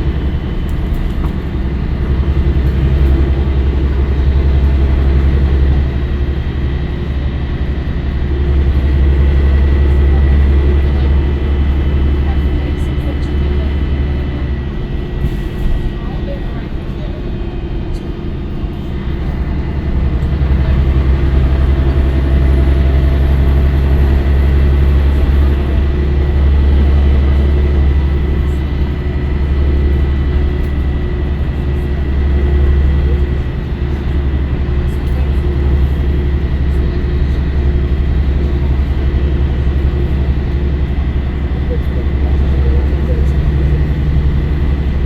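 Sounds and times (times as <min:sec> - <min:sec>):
bus diesel engine drone: 0:00.0 - 0:45.0
high engine whine: 0:00.0 - 0:45.0.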